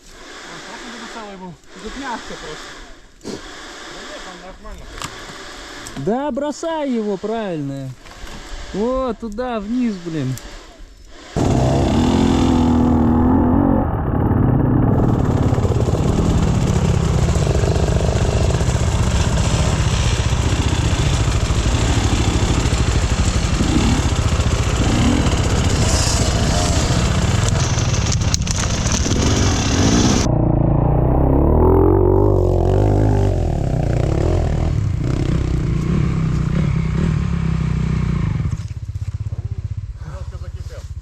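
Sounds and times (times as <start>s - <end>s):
rushing hiss: 0.0s - 7.6s, 15.6s - 28.1s
motorcycle engine running: 11.4s - 41.0s.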